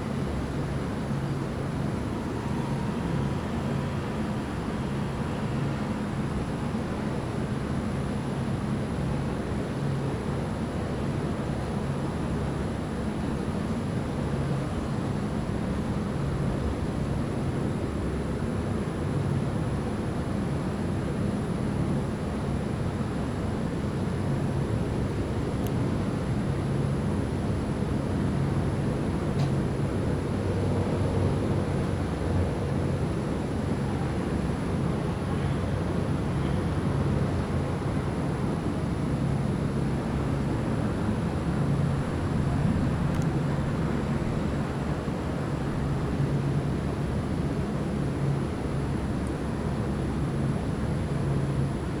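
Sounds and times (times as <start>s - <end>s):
wind: 0.0s - 52.0s.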